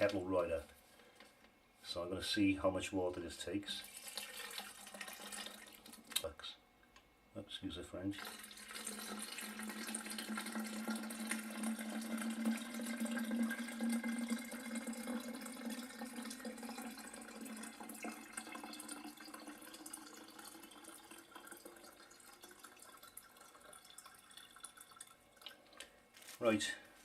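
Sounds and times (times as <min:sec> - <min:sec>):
water pouring into plastic tank: 0:03.8 - 0:06.3, 0:08.2 - 0:25.9.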